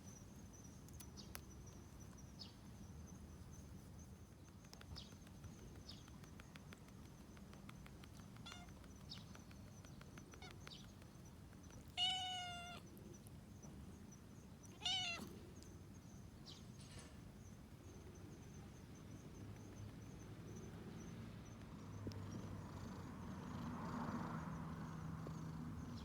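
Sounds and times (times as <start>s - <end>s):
cat meowing: 8.4s - 8.7s, 12.0s - 12.9s, 14.7s - 15.3s.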